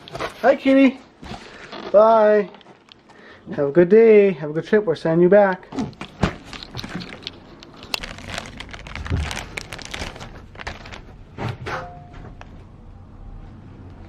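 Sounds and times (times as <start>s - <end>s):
handling clicks and rustling: 0.0s - 3.2s, 5.5s - 12.6s.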